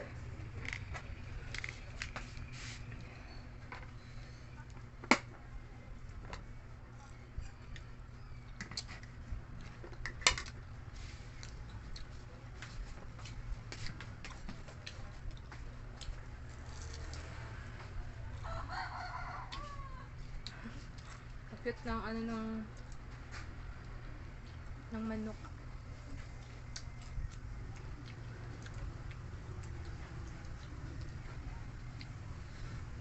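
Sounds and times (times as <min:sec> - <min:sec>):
low steady hum: 0:00.0 - 0:33.0
person chewing food: 0:26.0 - 0:32.7.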